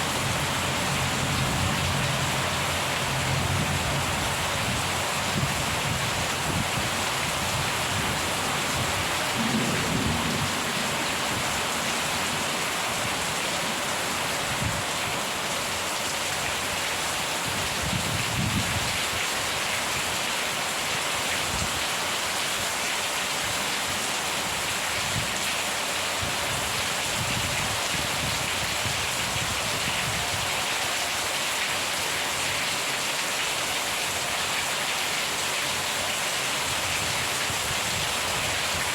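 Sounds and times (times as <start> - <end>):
heavy rain: 0.0 - 38.9
thunder rolling: 8.7 - 13.5.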